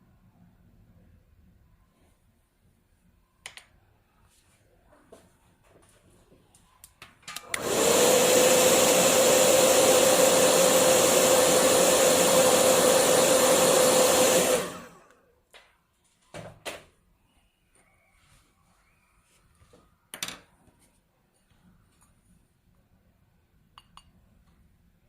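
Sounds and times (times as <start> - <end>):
hair dryer switch clicks: 7.4 - 7.8
hair dryer blowing: 7.4 - 15.2.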